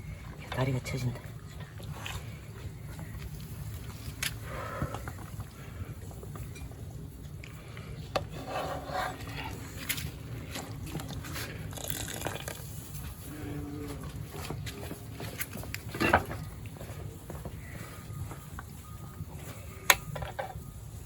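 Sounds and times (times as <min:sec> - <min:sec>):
broth sloshing in a pot: 0:08.2 - 0:13.3.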